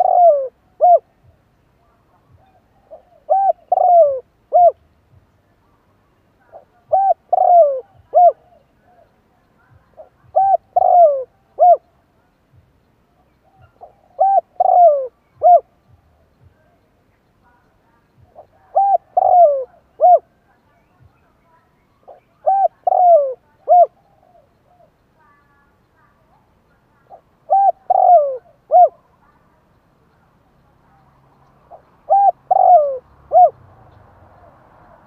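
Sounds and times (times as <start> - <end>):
dove cooing: 0.0 - 1.2, 2.2 - 4.8, 6.4 - 9.1, 9.8 - 11.9, 13.4 - 15.8, 18.2 - 20.6, 22.0 - 25.0, 26.9 - 29.2, 31.7 - 33.6.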